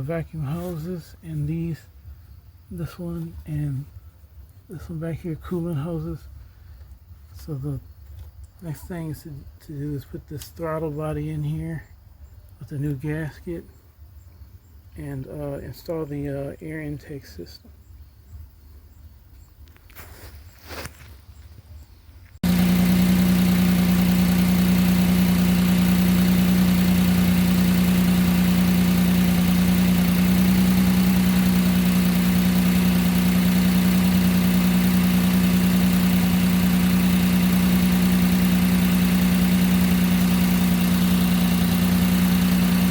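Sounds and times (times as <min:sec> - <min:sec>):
car engine idling: 0:22.4 - 0:42.9.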